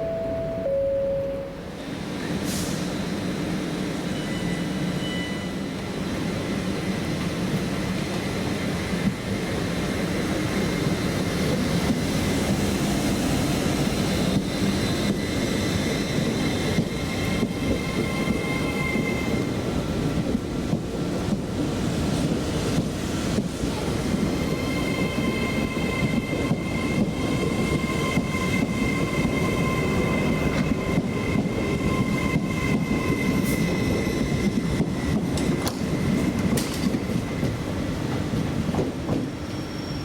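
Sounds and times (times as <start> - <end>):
train rumbling: 0.0 - 40.0
high squealing wheels: 3.9 - 6.3, 13.8 - 19.7, 24.3 - 38.0, 39.3 - 40.0.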